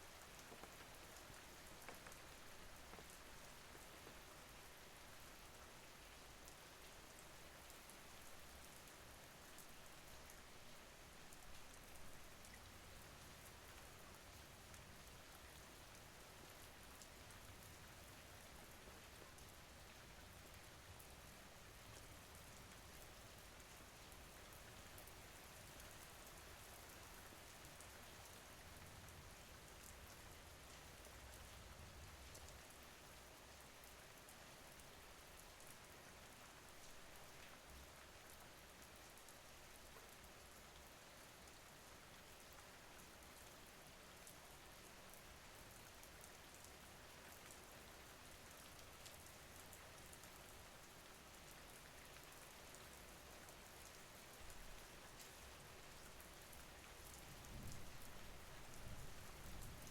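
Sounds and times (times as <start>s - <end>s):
faint steady rain: 0.0s - 59.9s
raindrop ticks: 0.2s - 4.5s, 53.5s - 59.9s.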